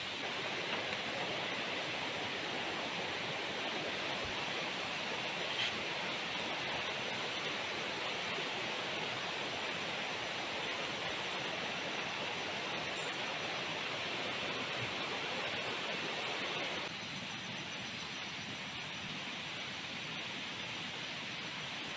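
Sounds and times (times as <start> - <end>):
heavy rain hissing: 0.0 - 16.9.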